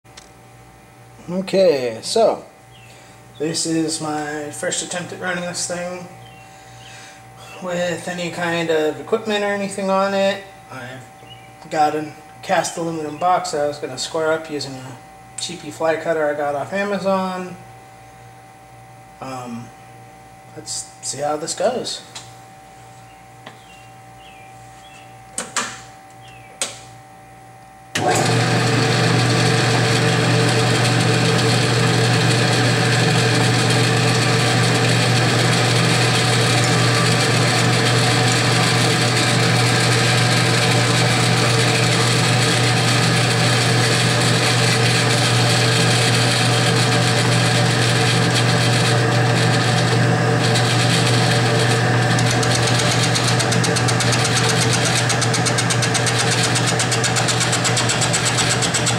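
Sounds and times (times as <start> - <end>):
milling machine running: 28.0 - 58.9.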